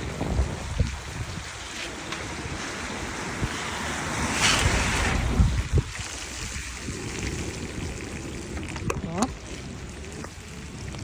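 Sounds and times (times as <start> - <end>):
hiss of wet road: 0.0 - 8.6
wind rumbling on microphone: 0.0 - 11.0.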